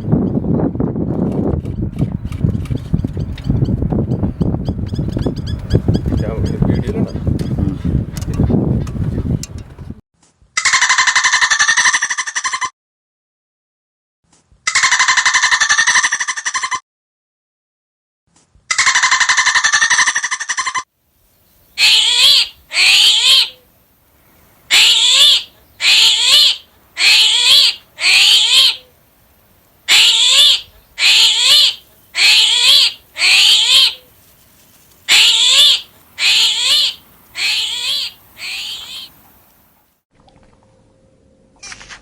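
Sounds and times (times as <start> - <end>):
animal making high wavering calls: 21.8 - 23.6, 24.7 - 28.9, 29.9 - 34.1, 35.1 - 39.2.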